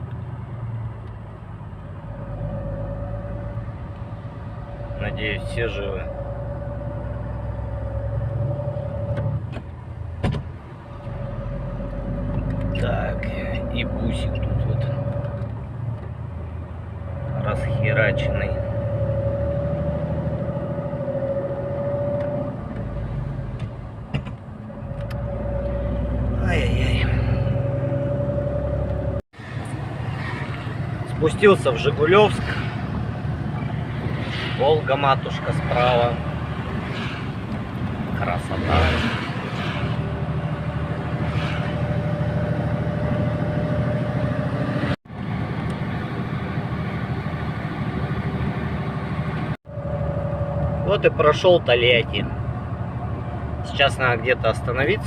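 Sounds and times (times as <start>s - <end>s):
constant whine: 0.0s - 55.0s
diesel engine drone: 0.0s - 55.0s
road noise: 0.0s - 55.0s.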